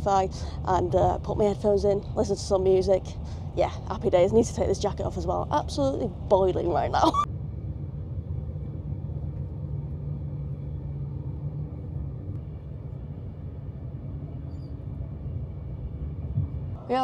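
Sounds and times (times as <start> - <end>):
electric train running rumble: 0.0 - 17.0.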